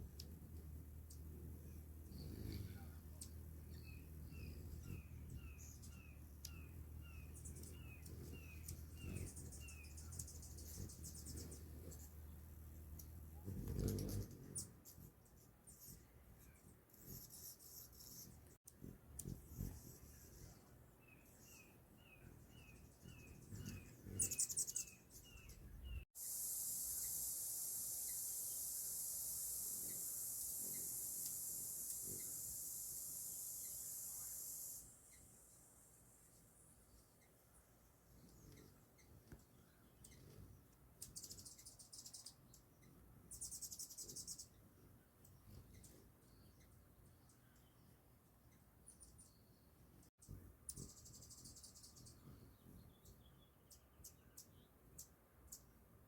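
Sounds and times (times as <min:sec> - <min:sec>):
bird chirping faintly: 0:00.0 - 0:56.0
steady high hiss: 0:26.1 - 0:37.9.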